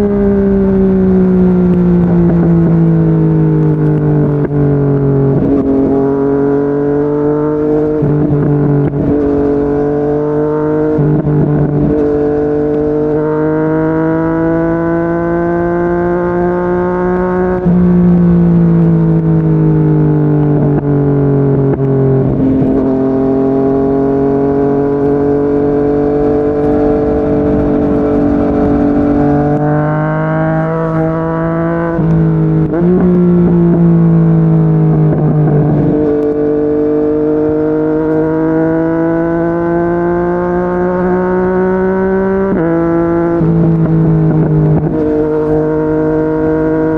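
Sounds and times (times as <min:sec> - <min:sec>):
motorcycle engine at speed: 0:00.0 - 0:46.9
wind rush: 0:21.5 - 0:34.1.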